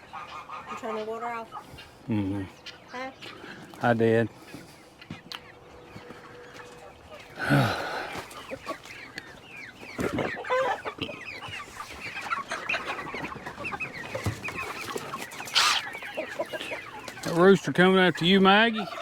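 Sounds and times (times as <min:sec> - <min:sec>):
chickens clucking: 0:00.0 - 0:19.0
loud harsh chicken call: 0:15.5 - 0:17.0.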